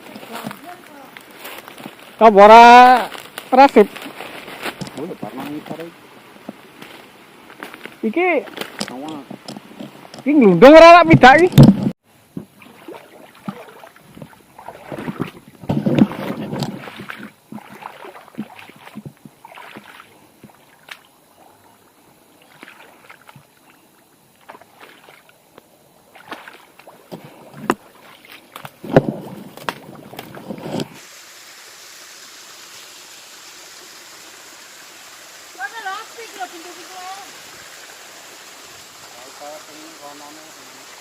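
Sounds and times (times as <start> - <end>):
feet wading in a stream: 12.4 - 41.0
flowing water rushing: 12.5 - 25.3, 26.0 - 41.0.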